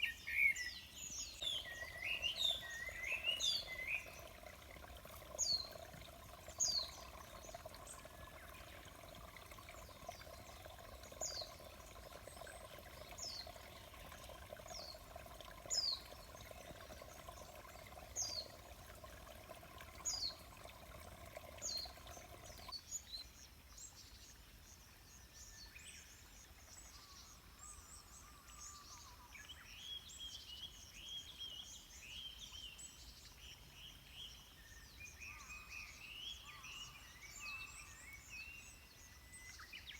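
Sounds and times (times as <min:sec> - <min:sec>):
chorus of chirping birds: 0:00.0 - 0:22.7.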